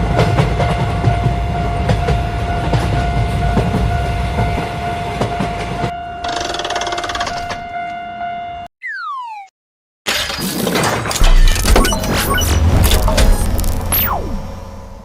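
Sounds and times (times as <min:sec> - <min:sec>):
train wheels clattering on rails: 0:00.0 - 0:07.7.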